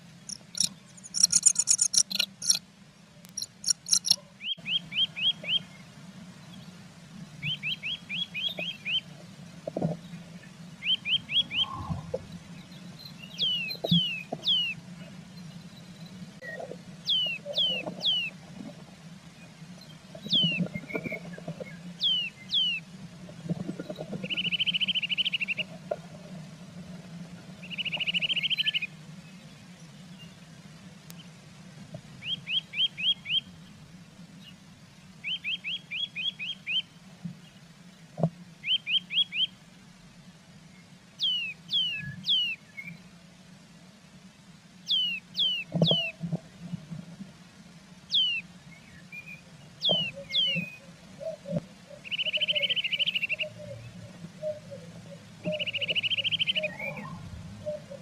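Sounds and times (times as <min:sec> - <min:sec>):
steady low hum: 0:00.0 - 0:17.5
small songbird singing: 0:00.1 - 0:02.6, 0:03.3 - 0:05.8, 0:07.3 - 0:09.1, 0:10.8 - 0:11.9, 0:12.6 - 0:18.3, 0:19.8 - 0:21.1, 0:22.0 - 0:22.8, 0:27.6 - 0:30.4, 0:32.2 - 0:33.8, 0:35.2 - 0:37.7, 0:38.6 - 0:39.6, 0:40.7 - 0:43.0, 0:44.9 - 0:46.1, 0:48.1 - 0:58.0.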